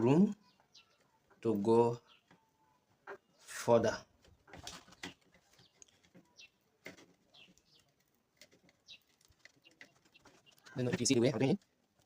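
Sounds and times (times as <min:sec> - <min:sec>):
faint bird chirps: 0:00.0 - 0:08.1.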